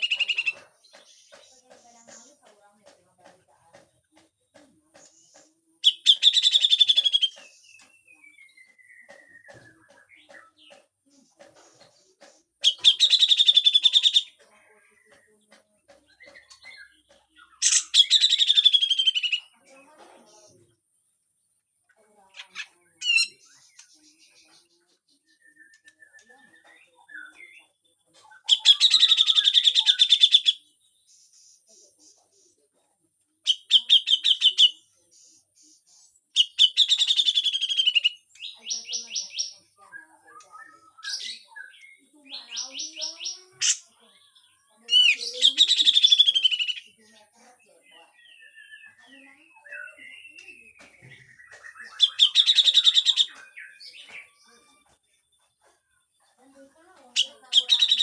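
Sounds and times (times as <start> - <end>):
bird rattling chatter calls: 0.0 - 2.6, 4.9 - 7.8, 10.4 - 14.4, 17.4 - 19.5, 22.3 - 24.7, 28.4 - 30.6, 33.4 - 39.6, 42.3 - 44.0, 44.9 - 47.1, 50.9 - 54.5, 57.0 - 58.0
bird singing harsh scratchy notes: 16.1 - 19.6, 44.8 - 47.2, 48.1 - 54.5, 57.2 - 58.0.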